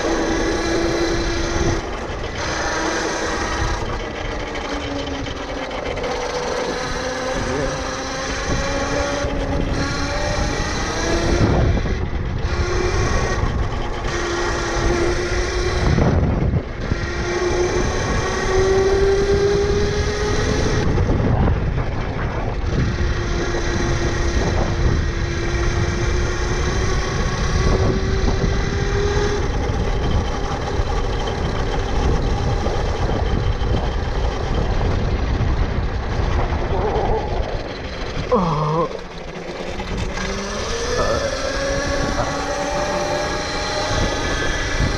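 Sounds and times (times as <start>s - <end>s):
tyres rumbling: 0.0s - 17.0s, 29.5s - 44.9s
electric motor whining: 0.0s - 44.9s
wind buffeting microphone: 0.0s - 44.9s.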